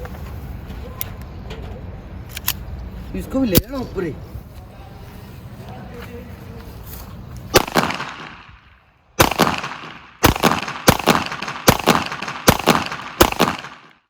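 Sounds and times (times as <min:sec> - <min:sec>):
gunshot echo crack: 0:07.5 - 0:08.6, 0:09.2 - 0:14.0
pistol shots: 0:07.5 - 0:08.6, 0:09.2 - 0:14.0.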